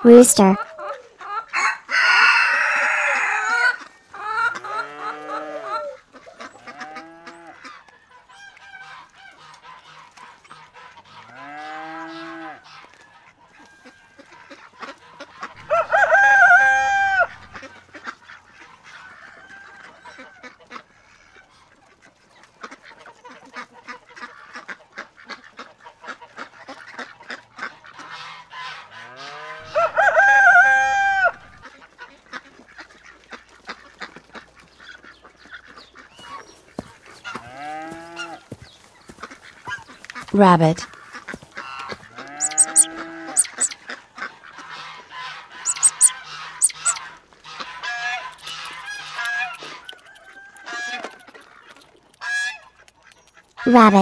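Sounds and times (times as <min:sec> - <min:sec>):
rooster crowing: 0:01.5 - 0:03.8, 0:15.6 - 0:17.5, 0:29.2 - 0:31.6, 0:42.2 - 0:43.7, 0:45.6 - 0:47.0, 0:49.3 - 0:51.2.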